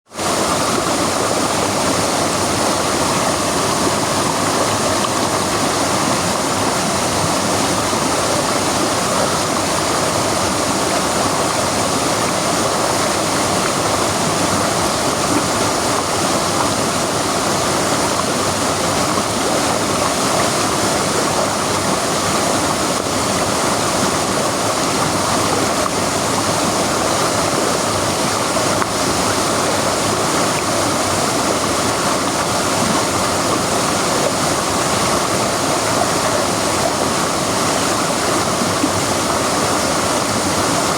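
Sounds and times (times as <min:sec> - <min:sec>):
waterfall pouring: 0:00.1 - 0:40.9.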